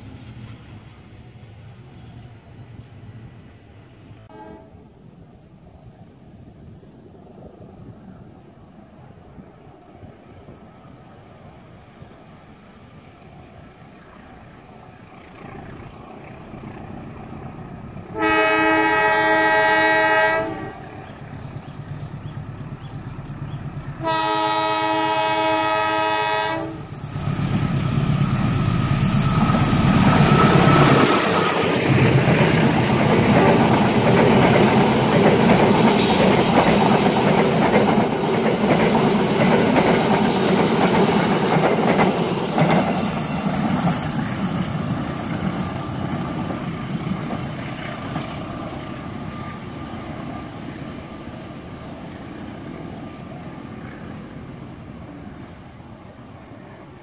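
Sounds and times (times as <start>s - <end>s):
locomotive horn blasts: 4.3s - 4.9s, 18.1s - 20.9s, 24.0s - 26.9s
diesel locomotive rumble: 13.9s - 56.2s.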